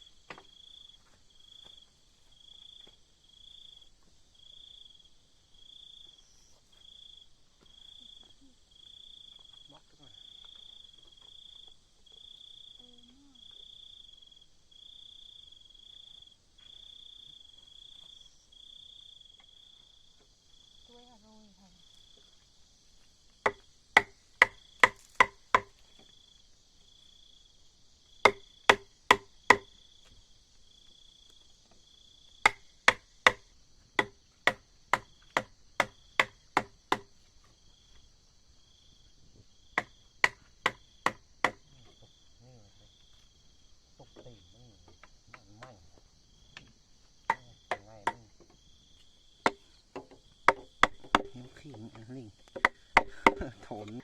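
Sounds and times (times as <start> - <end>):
insects chirping: 0.0 - 54.0
hand tool striking wood: 0.3 - 1.2, 23.5 - 25.8, 28.2 - 29.7, 32.4 - 33.4, 34.0 - 37.1, 39.8 - 41.6, 47.3 - 48.6, 49.4 - 54.0.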